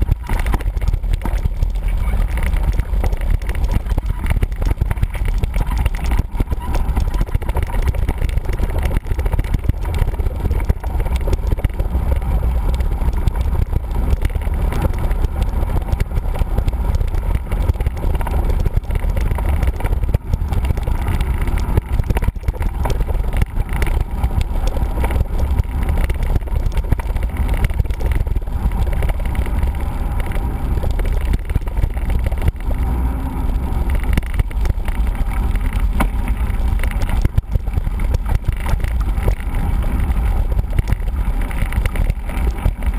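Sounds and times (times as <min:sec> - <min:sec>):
bike rattles and knocks: 0:00.0 - 0:42.9
wind on microphone: 0:00.0 - 0:42.9.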